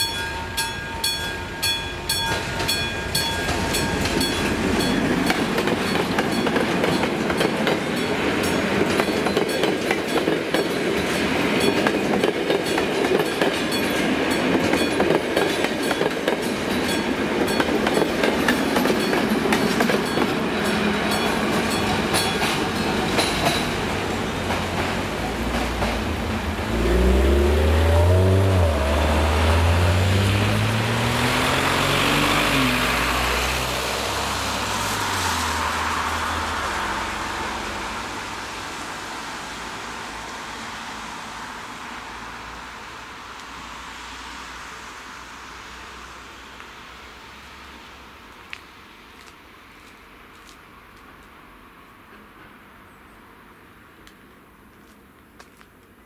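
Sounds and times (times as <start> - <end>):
train wheels clickety-clack: 2.1 - 27.0
vehicle engine accelerating: 26.4 - 37.4.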